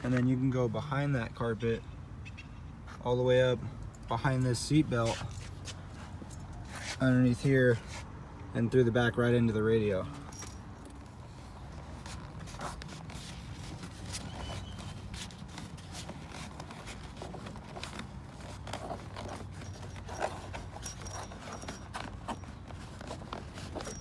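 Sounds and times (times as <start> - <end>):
small clicks and rustles: 10.3 - 24.0.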